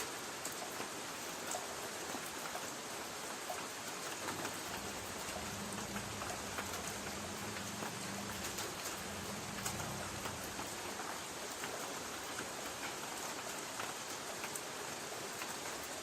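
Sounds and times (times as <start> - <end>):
rain on a tin roof: 0.0 - 16.0
faint low hum: 4.6 - 11.1.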